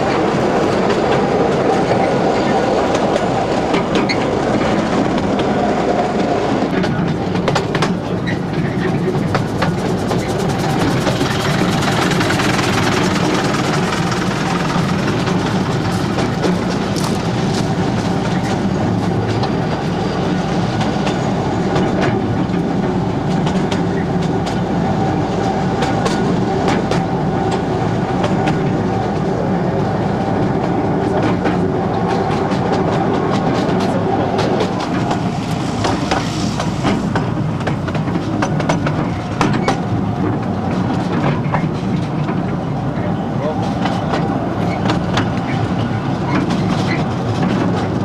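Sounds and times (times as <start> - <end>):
train rumbling: 0.0 - 48.0
wheels clattering over rails: 0.0 - 48.0.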